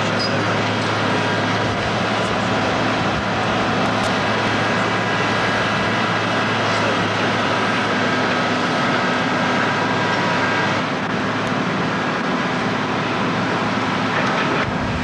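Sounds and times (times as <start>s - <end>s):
mechanical drone with low hum: 0.0s - 15.0s.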